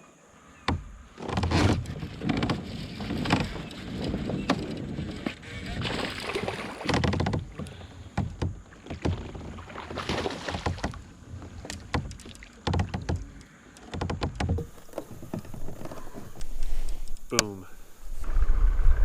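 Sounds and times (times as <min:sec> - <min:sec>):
water splashing bursts: 0:05.4 - 0:14.0
knocks against plastic hull: 0:06.8 - 0:09.4, 0:10.0 - 0:11.0, 0:11.6 - 0:16.2.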